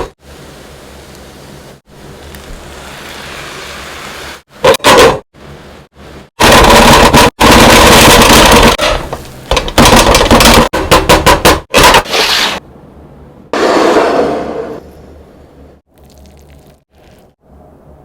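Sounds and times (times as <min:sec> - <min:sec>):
sizzling: 0:00.2 - 0:04.6.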